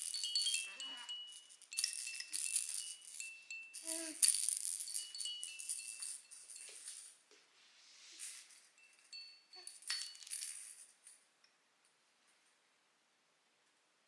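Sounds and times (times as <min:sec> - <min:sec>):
baby rattle with bells shaking: 0:00.0 - 0:07.2, 0:08.0 - 0:11.2
baby cooing: 0:03.8 - 0:04.2.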